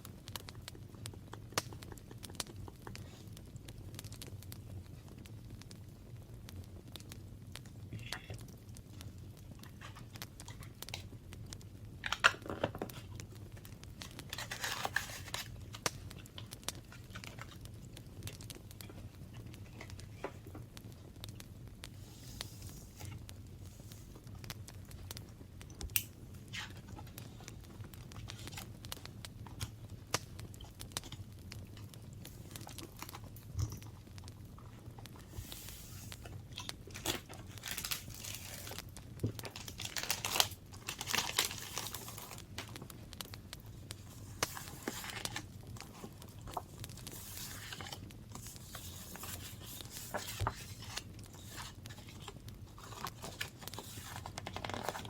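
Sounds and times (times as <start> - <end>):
paper crinkling and rustling: 9.6 - 11.1, 12.0 - 17.7, 18.3 - 20.7, 25.9 - 28.8, 34.8 - 42.9, 43.7 - 55.0.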